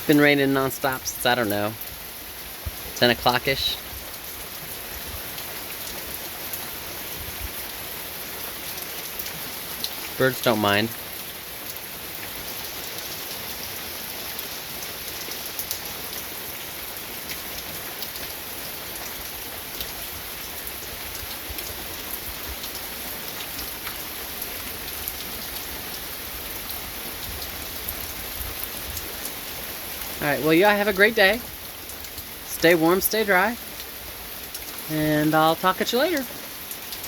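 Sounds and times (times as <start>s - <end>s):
heavy rain falling: 0.0s - 37.0s
drips of water: 31.3s - 37.0s.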